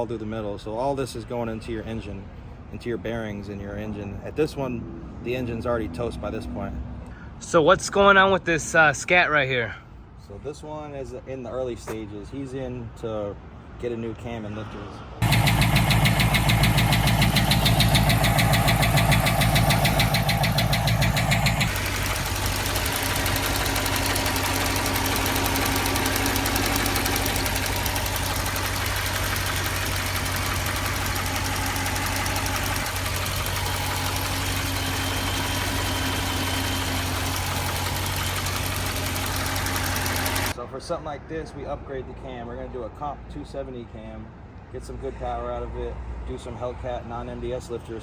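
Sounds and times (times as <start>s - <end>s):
car engine idling: 15.2s - 40.6s
fast engine ticking: 15.2s - 40.6s.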